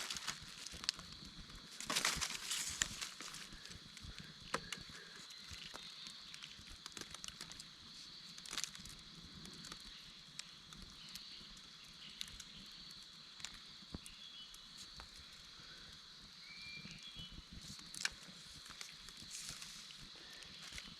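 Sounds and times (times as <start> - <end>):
twigs snapping underfoot: 0.0 - 11.2, 17.7 - 20.9.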